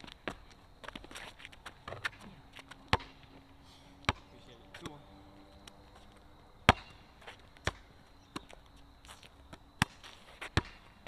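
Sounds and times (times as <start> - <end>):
basketball bouncing on hard court: 0.0 - 11.0.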